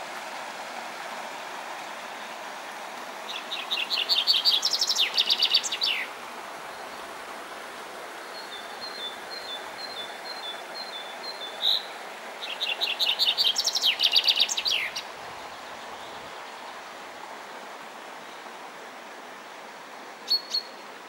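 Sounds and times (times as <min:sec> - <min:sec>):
running water rushing: 0:00.0 - 0:21.0
songbirds singing: 0:03.2 - 0:07.3, 0:08.0 - 0:17.1, 0:20.2 - 0:20.9.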